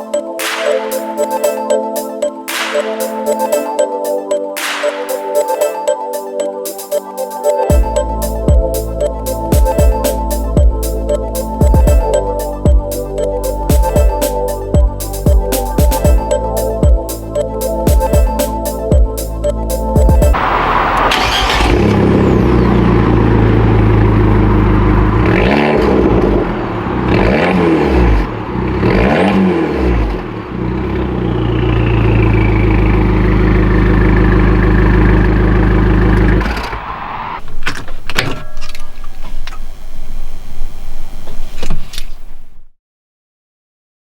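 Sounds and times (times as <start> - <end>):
engine blips: 19.2 - 37.6
car engine idling: 20.3 - 37.6.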